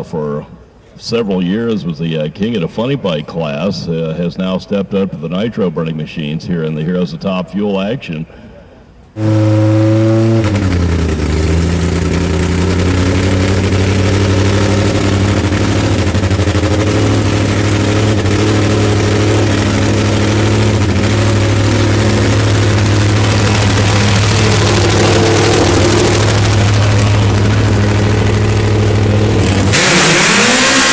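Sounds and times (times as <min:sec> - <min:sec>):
drag motorcycle engine idling loudly: 0:09.2 - 0:29.8.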